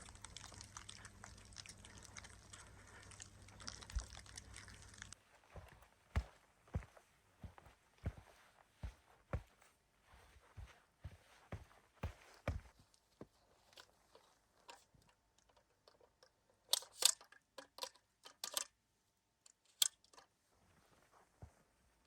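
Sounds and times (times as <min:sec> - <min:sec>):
snow crunching: 0:02.6 - 0:12.8.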